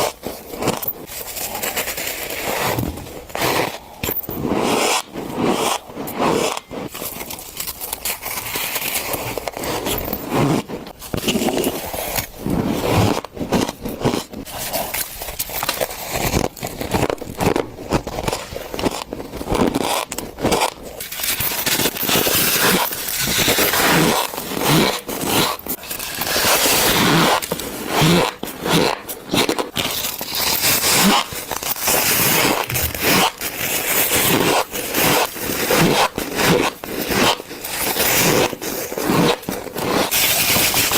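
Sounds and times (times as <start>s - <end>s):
ice crunching while chewed: 28.8s - 34.2s.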